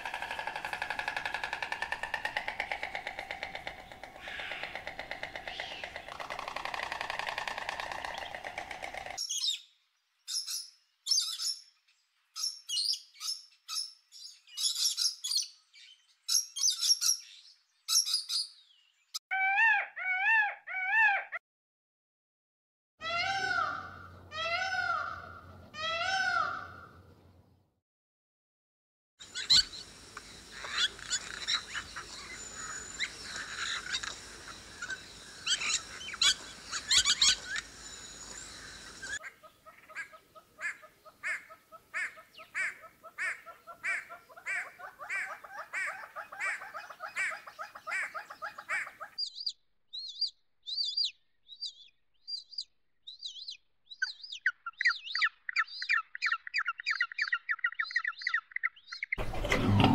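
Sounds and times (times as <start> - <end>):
peafowl wailing calls: 0.0 - 9.2, 23.0 - 26.9, 29.2 - 49.2
mix of bird calls and clicks: 0.0 - 21.4, 29.2 - 59.9
repeated bird call: 29.2 - 59.9.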